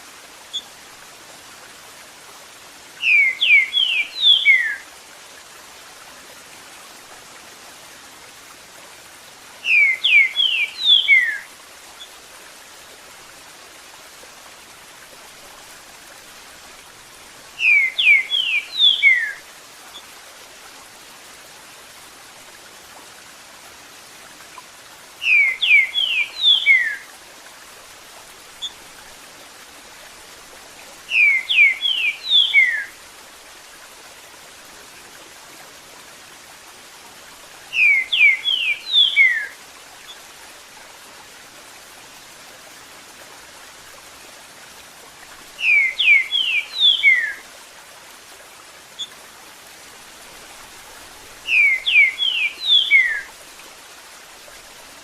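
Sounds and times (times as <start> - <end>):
running water: 0.0 - 55.0
bird singing whistled phrases: 3.0 - 4.8, 9.6 - 11.4, 17.6 - 19.4, 25.2 - 27.0, 31.1 - 32.9, 37.7 - 39.6, 45.6 - 47.4, 51.5 - 53.3.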